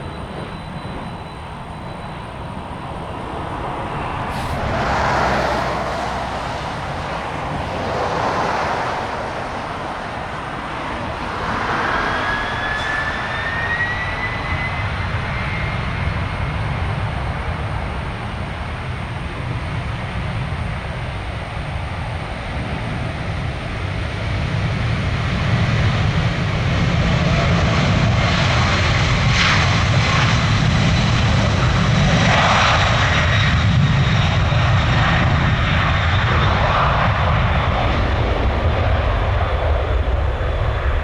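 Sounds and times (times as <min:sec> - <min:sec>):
faint high whine: 0:00.0 - 0:05.0, 0:06.7 - 0:21.0
jet engines rumbling overhead: 0:00.0 - 0:41.0.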